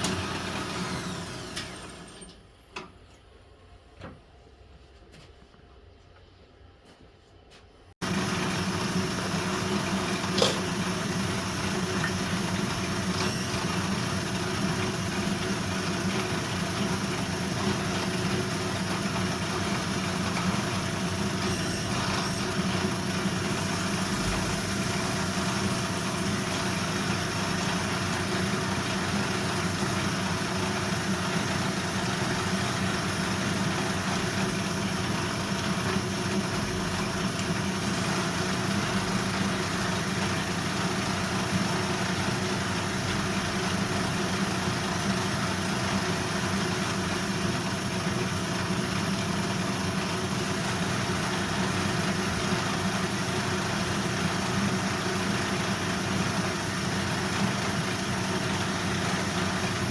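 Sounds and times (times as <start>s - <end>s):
machine motor humming: 0.0s - 2.2s, 8.0s - 36.5s.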